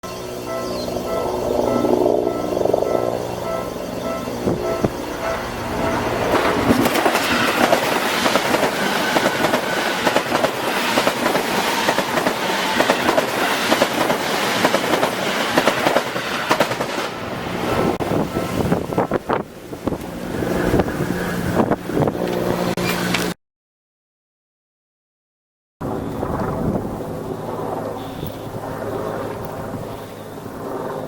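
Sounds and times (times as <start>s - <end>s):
train wheels clattering over joints: 4.8s - 17.1s.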